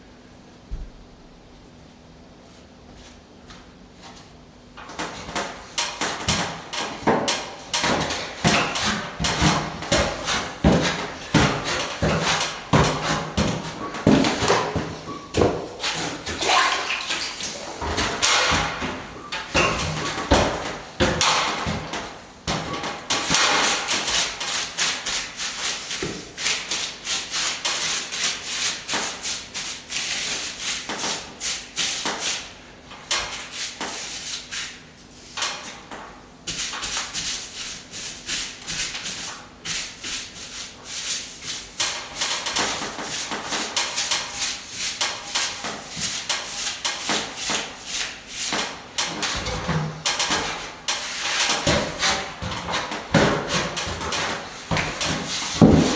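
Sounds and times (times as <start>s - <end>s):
hand tool scraping over plaster: 6.0s - 16.4s, 36.5s - 55.9s.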